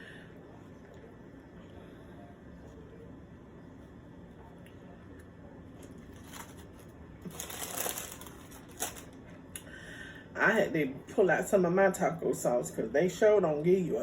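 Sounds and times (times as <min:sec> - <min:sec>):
food packaging crinkling: 0:05.8 - 0:09.4.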